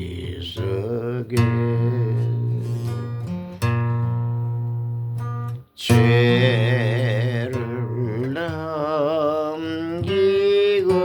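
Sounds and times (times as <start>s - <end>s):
person singing with vibrato: 0.0s - 3.2s, 5.8s - 11.0s
acoustic guitar: 0.0s - 11.0s.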